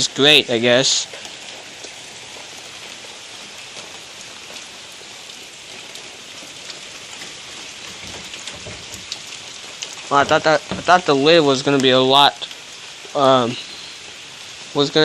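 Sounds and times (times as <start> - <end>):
heavy rain: 0.0 - 15.0
drops ticking on surfaces: 5.8 - 11.1.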